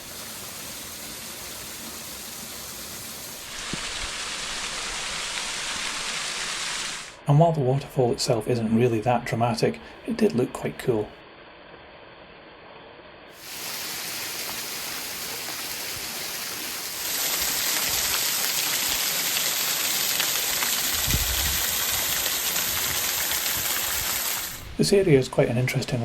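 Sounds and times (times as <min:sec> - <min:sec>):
waterfall rushing and splashing: 0:00.0 - 0:07.2, 0:13.4 - 0:24.7.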